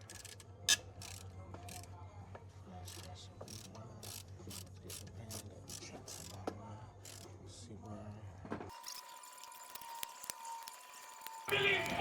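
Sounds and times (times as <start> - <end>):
ratchet wrench clicking: 0.0 - 1.9, 2.8 - 7.3.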